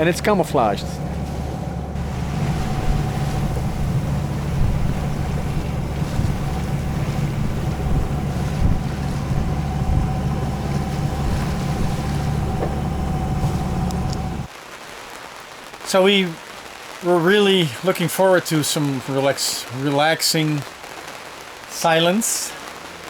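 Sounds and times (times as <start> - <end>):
low drone: 0.0 - 14.5
water noise: 0.0 - 14.9
wind: 0.0 - 23.0.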